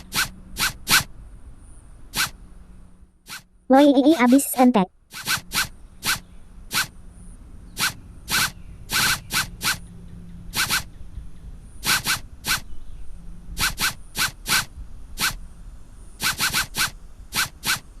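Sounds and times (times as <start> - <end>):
scratchy zip-like rasps: 0.0 - 1.1, 2.2 - 2.4, 3.3 - 3.5, 4.1 - 6.9, 7.8 - 9.8, 10.5 - 10.9, 11.8 - 12.6, 13.6 - 15.4, 16.2 - 18.0.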